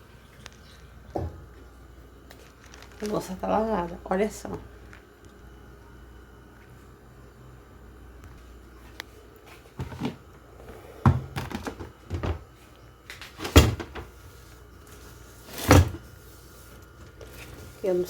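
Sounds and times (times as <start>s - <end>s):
cupboard doors and cookware knocking: 11.0s - 12.4s.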